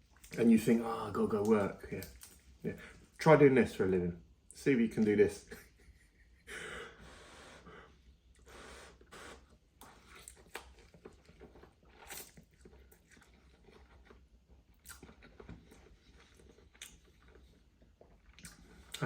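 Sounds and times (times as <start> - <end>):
faint close chewing: 0.0 - 3.2, 8.3 - 19.0
mouth clicks and smacks: 18.1 - 19.0.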